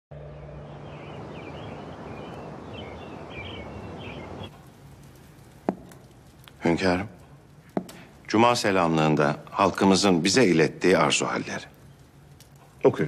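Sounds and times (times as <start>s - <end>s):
birds chirping: 0.1s - 13.0s.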